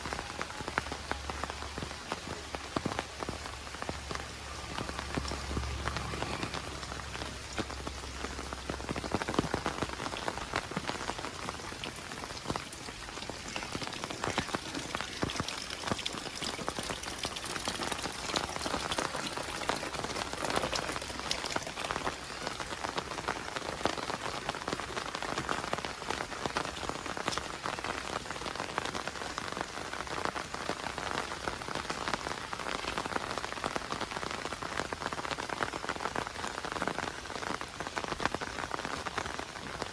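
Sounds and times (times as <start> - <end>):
heavy rain falling: 0.0 - 39.9
raindrops ticking on surfaces: 0.0 - 39.9.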